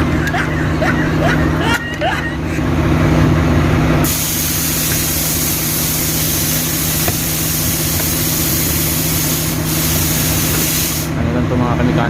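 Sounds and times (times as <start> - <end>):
engine idling: 0.0 - 12.0
loud hiss of air: 4.0 - 11.2.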